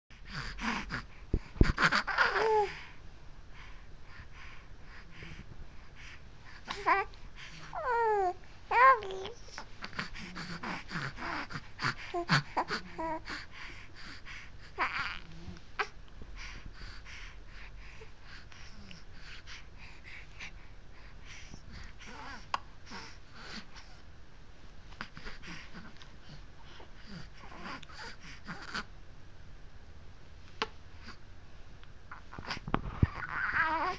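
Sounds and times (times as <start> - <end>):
baby squeaking and grunting: 1.8 - 2.7, 33.1 - 33.9.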